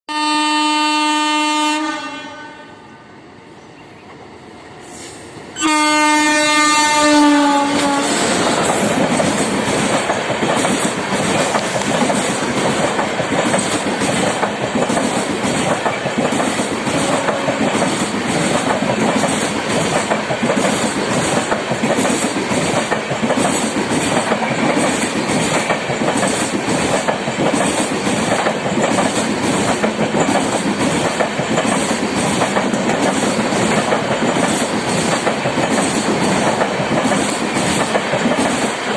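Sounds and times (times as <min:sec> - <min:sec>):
train horn blasts: 0:00.1 - 0:03.1, 0:05.6 - 0:08.5, 0:17.1 - 0:17.8
train wheels clattering over rails: 0:07.6 - 0:38.9.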